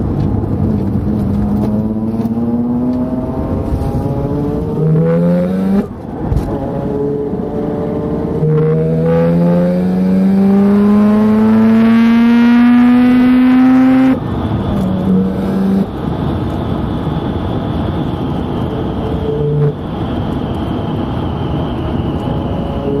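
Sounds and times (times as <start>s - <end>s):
rotary engine accelerating: 0.4s - 16.1s.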